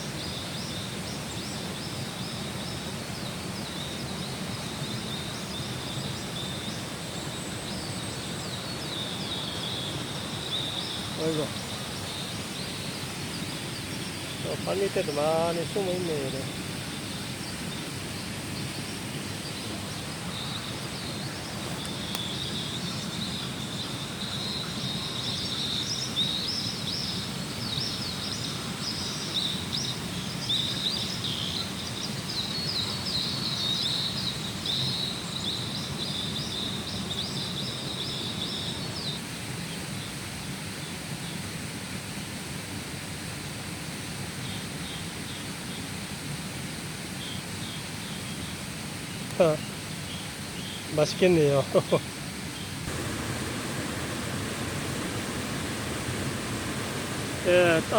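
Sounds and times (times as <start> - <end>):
low outdoor rush: 50.9 - 57.9.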